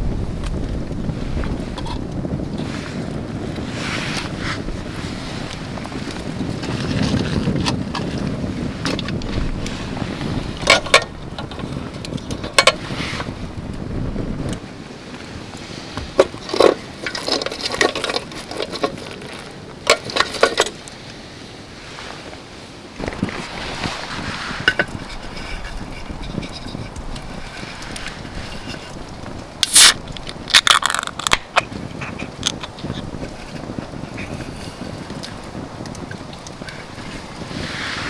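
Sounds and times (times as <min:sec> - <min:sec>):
wind buffeting microphone: 0:00.0 - 0:38.0
camp gear knocking and clinking: 0:00.1 - 0:02.8, 0:04.2 - 0:13.3, 0:15.9 - 0:20.9, 0:24.6 - 0:29.0, 0:29.6 - 0:37.1.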